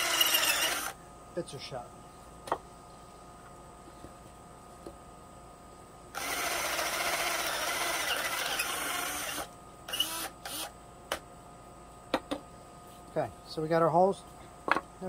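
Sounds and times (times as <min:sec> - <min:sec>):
electric drill boring wood: 0:00.0 - 0:01.0, 0:06.2 - 0:10.7.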